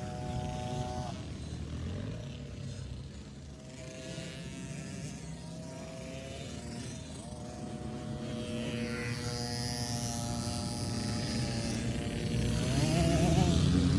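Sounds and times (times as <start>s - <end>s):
dirt bike engine revving: 10.7s - 13.9s.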